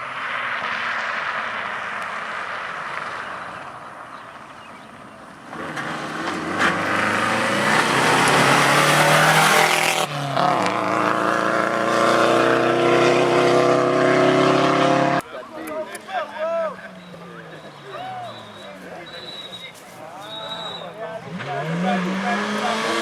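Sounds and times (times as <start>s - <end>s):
rally car engine revving: 5.3s - 15.2s, 20.8s - 23.0s.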